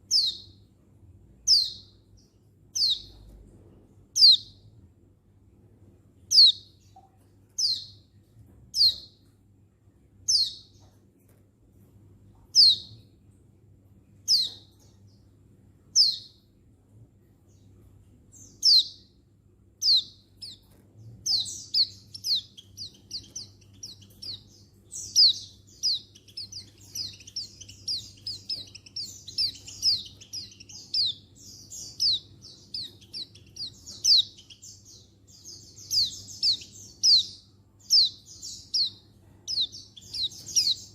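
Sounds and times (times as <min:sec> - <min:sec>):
fast bird chirps: 0:19.8 - 0:40.9.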